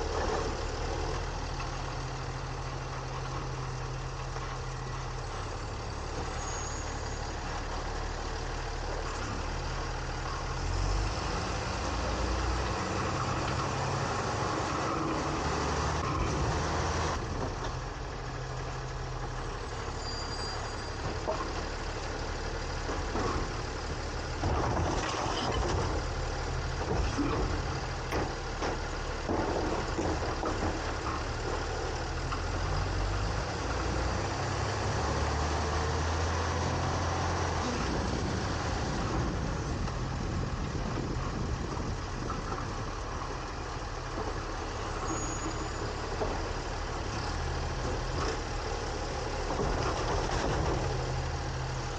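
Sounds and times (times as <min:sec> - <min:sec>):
garbage truck engine running: 0:00.0 - 0:51.9
knocks and clatter: 0:26.7 - 0:31.6, 0:49.4 - 0:51.2.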